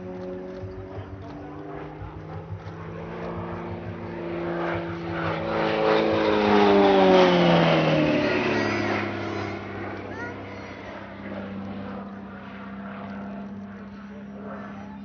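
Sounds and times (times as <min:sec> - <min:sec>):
propeller plane passing by: 0:00.0 - 0:15.0.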